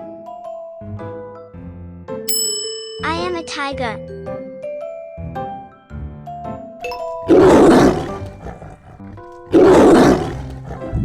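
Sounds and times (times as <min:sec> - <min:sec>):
tiger roaring: 0:07.1 - 0:11.0.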